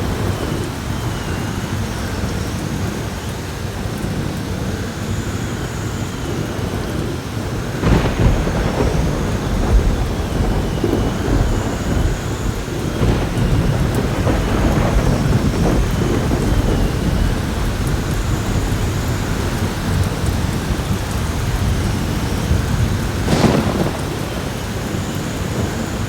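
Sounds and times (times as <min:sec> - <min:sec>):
heavy rain falling: 0:00.0 - 0:26.0
wind whistling: 0:00.0 - 0:26.0
rumbling thunder: 0:07.6 - 0:26.0.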